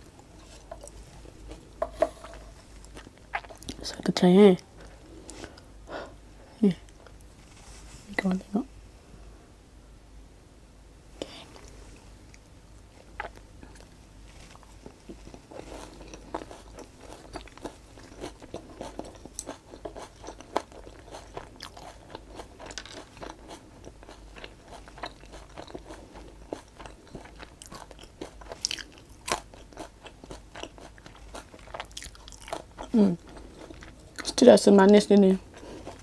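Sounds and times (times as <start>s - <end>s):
crunchy chewing: 11.5s - 34.4s, 35.4s - 36.0s.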